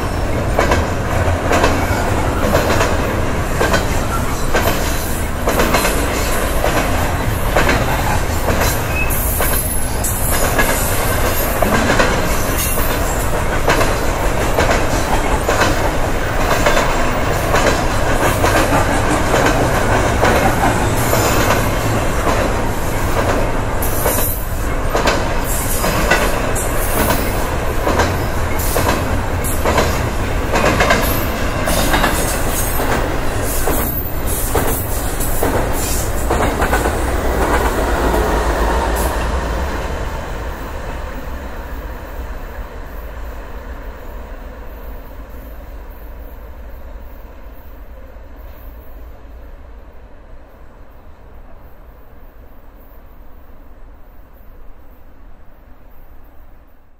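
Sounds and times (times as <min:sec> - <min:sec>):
freight train wheels clattering: 0:00.0 - 0:41.4.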